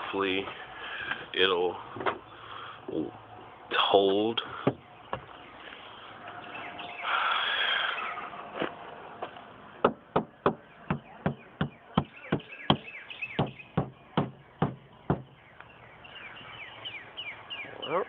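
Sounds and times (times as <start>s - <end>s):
sharp knocks: 9.8s - 15.3s.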